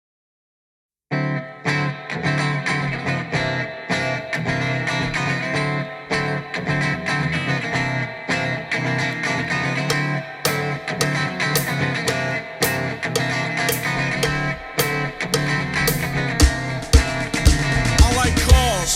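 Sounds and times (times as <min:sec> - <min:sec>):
bass guitar: 0:01.1 - 0:18.9
electric guitar riff: 0:01.1 - 0:18.9
drums: 0:09.9 - 0:18.9.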